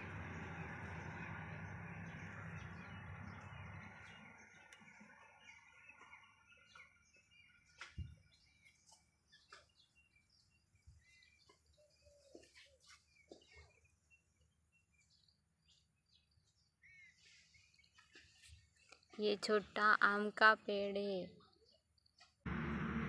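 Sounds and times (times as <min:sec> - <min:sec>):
birds chirping faintly: 0:00.0 - 0:23.0
low hum with noise: 0:22.5 - 0:23.0.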